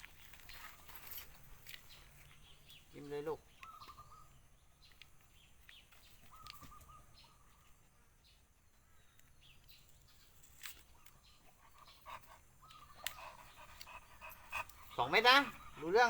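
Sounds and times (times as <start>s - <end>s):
high bird calls: 0.0s - 16.0s.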